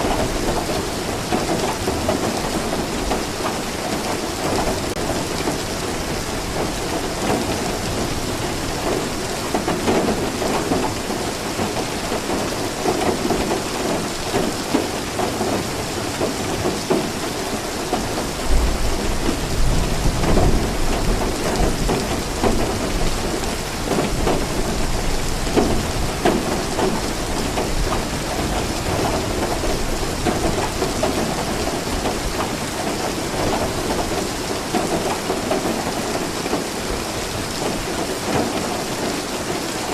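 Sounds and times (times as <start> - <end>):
rain falling: 0.0 - 39.9
thunder rumbling: 18.0 - 34.3.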